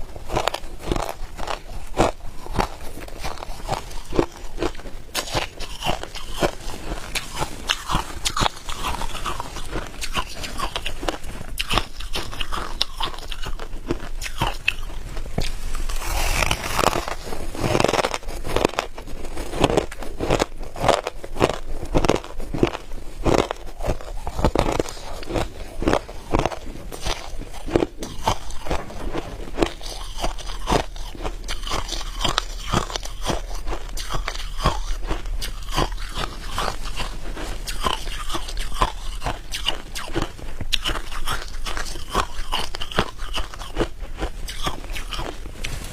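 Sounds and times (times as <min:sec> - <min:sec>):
ice crunching while chewed: 0:00.0 - 0:45.9.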